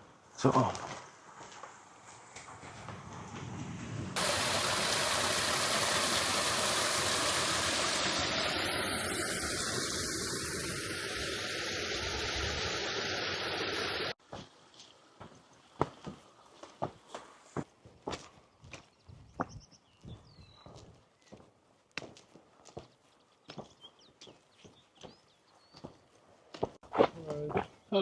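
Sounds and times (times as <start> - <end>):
footsteps: 0.5 - 4.2, 14.2 - 25.2.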